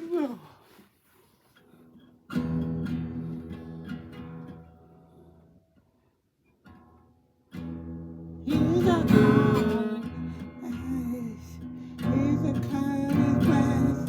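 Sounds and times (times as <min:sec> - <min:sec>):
acoustic guitar chord strummed: 0:02.3 - 0:05.4, 0:06.7 - 0:14.0.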